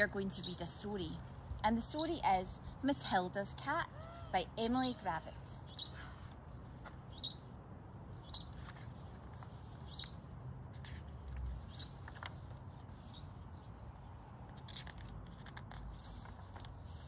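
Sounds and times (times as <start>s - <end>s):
outdoor background: 0.0s - 17.0s
small birds chirping: 3.9s - 17.0s.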